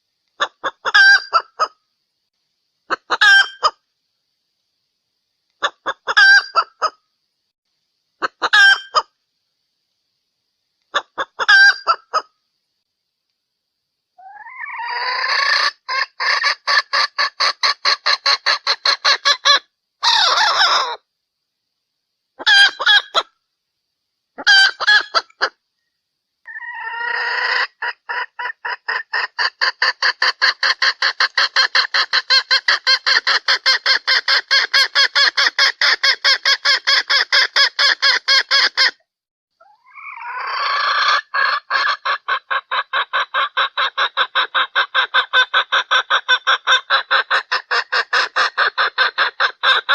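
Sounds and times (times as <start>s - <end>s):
hen clucking rapidly: 0.4s - 1.7s, 2.9s - 3.8s, 5.6s - 7.0s, 10.9s - 12.3s, 14.2s - 21.0s, 22.4s - 23.3s, 24.4s - 25.6s, 26.5s - 39.0s, 39.6s - 49.9s.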